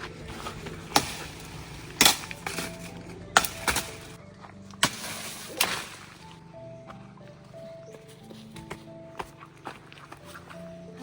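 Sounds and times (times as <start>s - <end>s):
knife chopping branches: 0.0s - 6.4s
background music: 0.0s - 11.0s.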